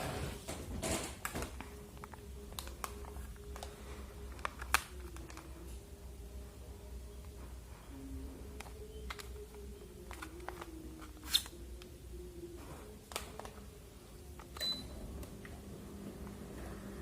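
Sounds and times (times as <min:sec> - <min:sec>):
low steady hum: 0:00.0 - 0:17.0
air conditioner short high beeps: 0:14.6 - 0:15.1.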